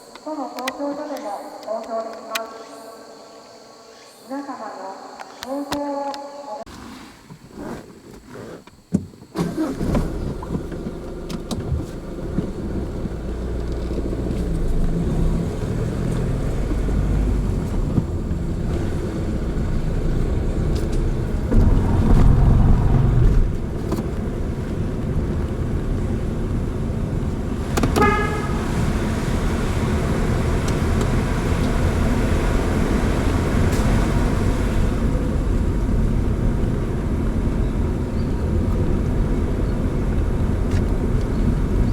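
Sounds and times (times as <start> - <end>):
car engine and tyres rumbling: 6.7 - 41.9
car horn toot: 27.8 - 28.9.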